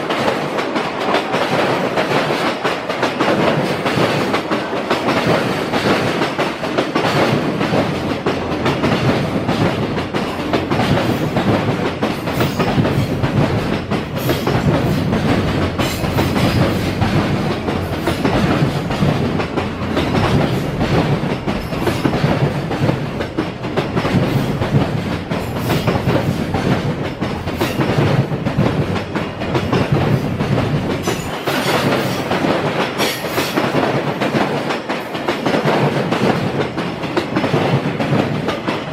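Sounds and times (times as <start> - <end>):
freight train wheels clattering on rails: 0.0 - 38.9.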